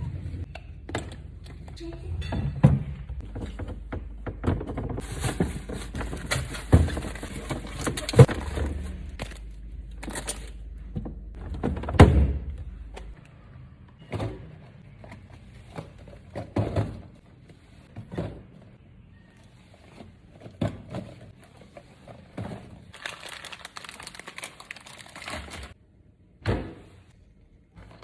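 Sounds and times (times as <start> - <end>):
packaging rustling: 22.9 - 25.8.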